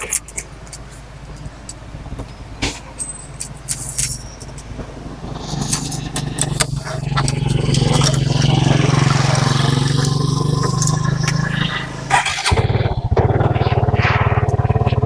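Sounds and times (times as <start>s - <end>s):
motor engine running: 3.6s - 15.0s.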